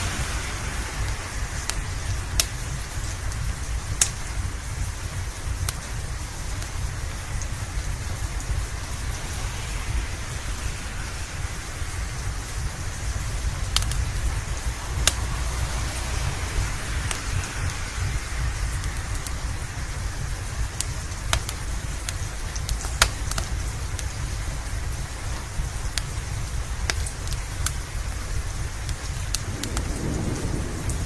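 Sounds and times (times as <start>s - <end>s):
deep low rumble: 0.0s - 22.9s, 29.3s - 31.0s
steady rain: 0.0s - 31.0s
wood fire crackling pops: 1.0s - 9.2s, 11.4s - 15.8s, 16.8s - 31.0s.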